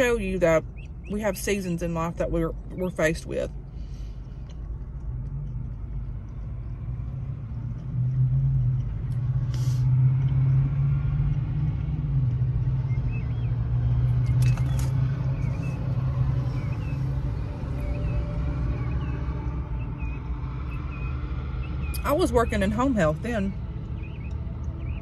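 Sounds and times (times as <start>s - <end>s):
car engine idling: 0.0s - 9.8s.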